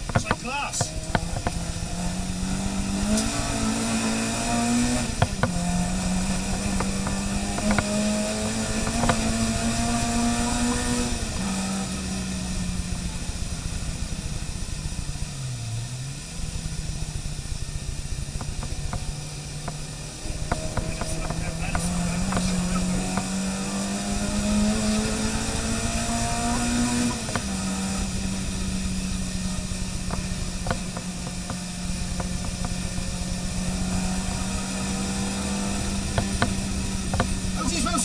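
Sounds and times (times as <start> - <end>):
sharp knocks: 0.0 - 11.2, 18.4 - 27.9, 35.0 - 37.5
racing car engine revving: 0.0 - 38.0.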